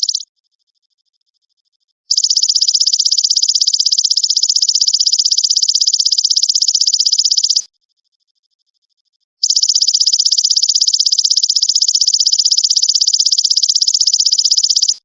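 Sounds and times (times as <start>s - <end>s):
insect rapid trill: 0.0s - 0.2s, 2.1s - 7.7s, 9.4s - 15.0s.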